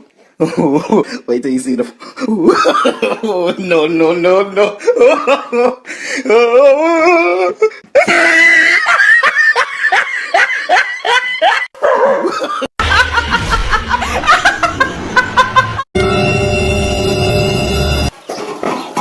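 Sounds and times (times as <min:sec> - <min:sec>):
person laughing hard: 0:02.2 - 0:03.4, 0:04.7 - 0:15.9.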